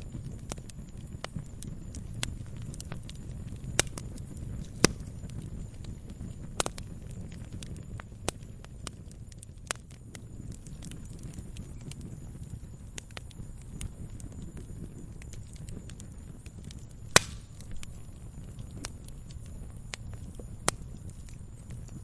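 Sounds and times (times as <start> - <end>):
low fire rumble: 0.0 - 22.0
wood popping and snapping: 4.6 - 5.1, 15.2 - 21.3.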